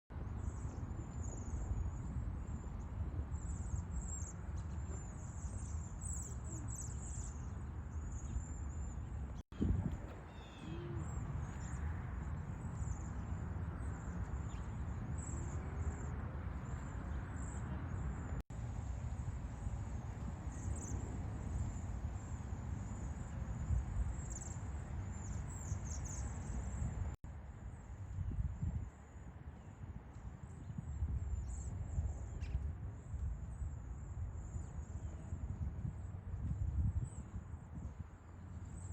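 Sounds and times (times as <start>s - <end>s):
constant low rumble: 0.1s - 38.9s
faint bird calls: 9.6s - 11.9s.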